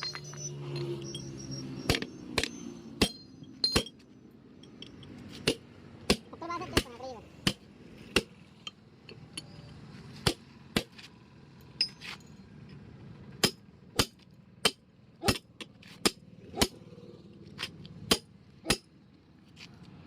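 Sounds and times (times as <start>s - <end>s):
hammer strikes with clinking ring: 0.0s - 6.4s, 18.0s - 19.0s.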